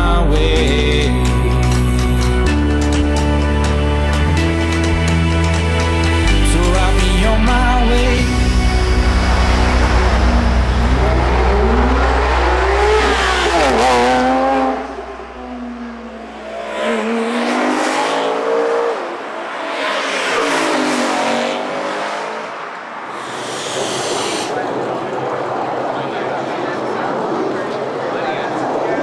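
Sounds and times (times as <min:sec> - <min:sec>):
car engines accelerating hard: 0:07.2 - 0:23.3.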